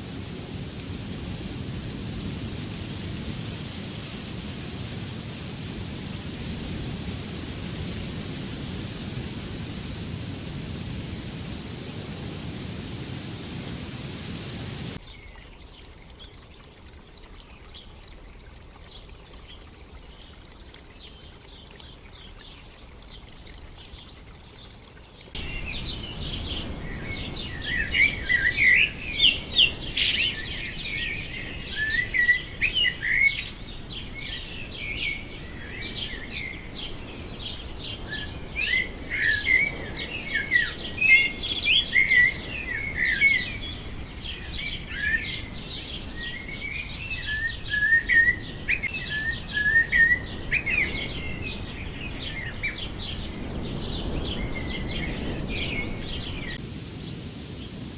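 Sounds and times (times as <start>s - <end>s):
faint hiss: 0.0s - 16.7s, 18.2s - 45.1s, 56.4s - 57.9s.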